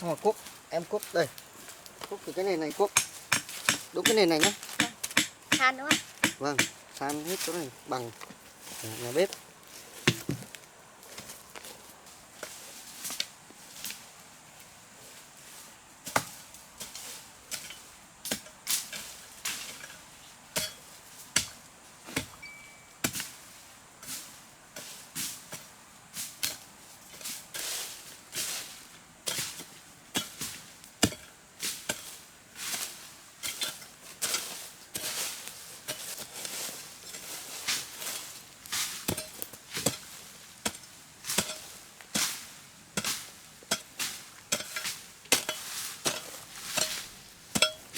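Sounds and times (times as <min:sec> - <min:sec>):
hoe striking and scraping earth: 0:02.0 - 0:11.7, 0:16.0 - 0:47.9.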